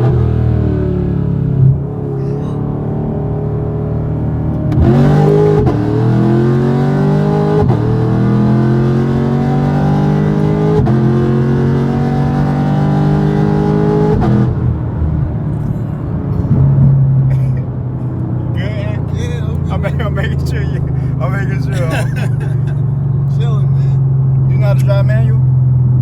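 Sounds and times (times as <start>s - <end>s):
car engine accelerating through gears: 0.0s - 24.6s.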